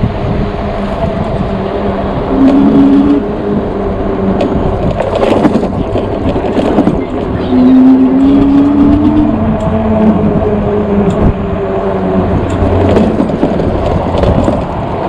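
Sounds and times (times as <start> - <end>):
electric bike motor whining: 0.0 - 15.0
wind: 0.0 - 15.0
tyre rumble: 12.2 - 15.0.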